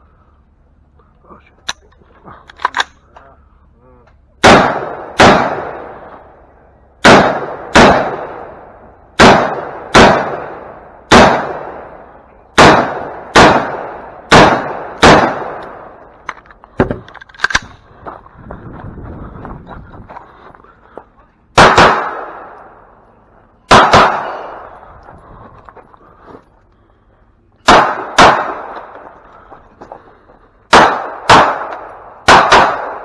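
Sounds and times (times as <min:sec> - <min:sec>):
rifle shots echoing: 0:04.4 - 0:17.9, 0:21.5 - 0:25.0, 0:27.6 - 0:29.6, 0:30.7 - 0:33.0.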